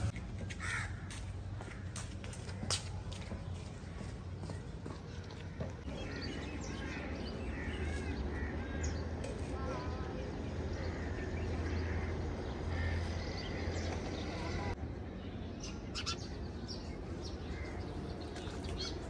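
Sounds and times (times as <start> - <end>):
birds chirping and calling: 2.0 - 14.8, 15.6 - 19.0.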